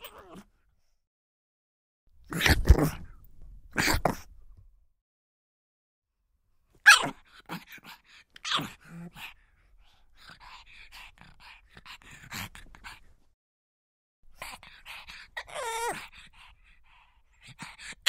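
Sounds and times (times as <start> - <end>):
dog yipping and whimpering: 0.0 - 0.4, 6.8 - 7.2, 15.4 - 16.0
dog barking: 6.8 - 7.2.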